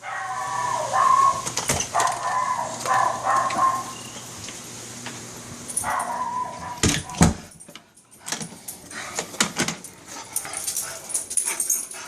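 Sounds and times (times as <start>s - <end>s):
dog whining: 0.0s - 4.2s, 5.8s - 7.4s.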